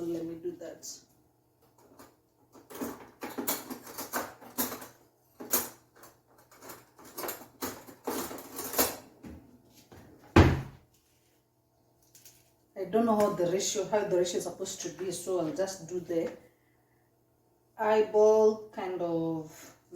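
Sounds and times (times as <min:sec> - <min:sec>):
heavy thud: 0:10.4 - 0:10.8.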